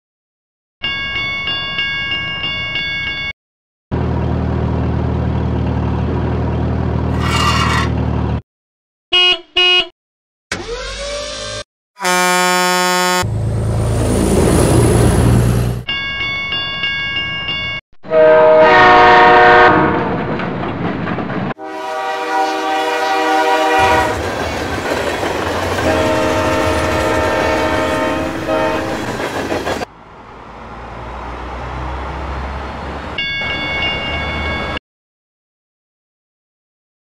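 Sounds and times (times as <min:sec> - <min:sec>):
train rumbling along track: 0:04.0 - 0:08.4, 0:13.2 - 0:15.9, 0:18.2 - 0:34.8
train horn blasts: 0:09.1 - 0:09.9, 0:12.0 - 0:13.4, 0:18.0 - 0:20.1, 0:21.6 - 0:24.2, 0:25.8 - 0:29.1.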